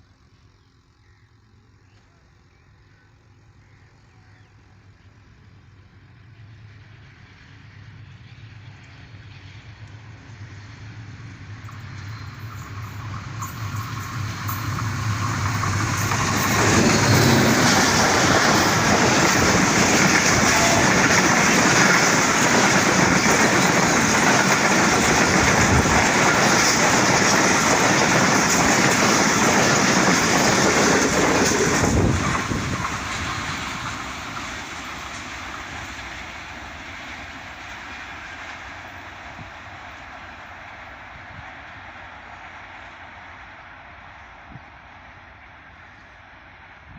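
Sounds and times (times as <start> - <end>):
diesel locomotive drone: 0.0 - 46.9
train wheel clatter: 6.3 - 43.1.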